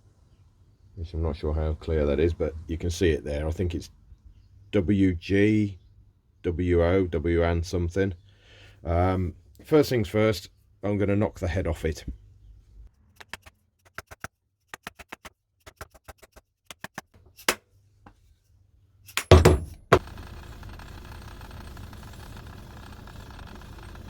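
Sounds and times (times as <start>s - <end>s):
knocks on hammer head: 19.2s - 20.0s
steady machine noise: 19.9s - 24.0s.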